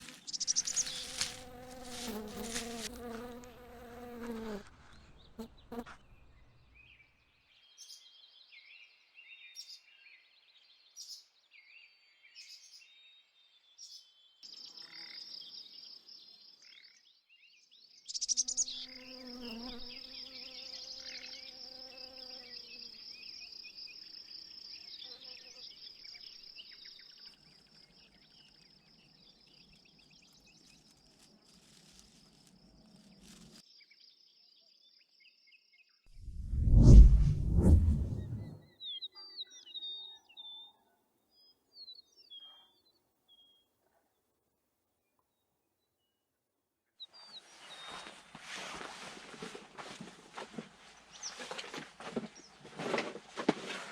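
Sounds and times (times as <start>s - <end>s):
insects chirring: 0.0s - 4.6s, 26.4s - 33.6s.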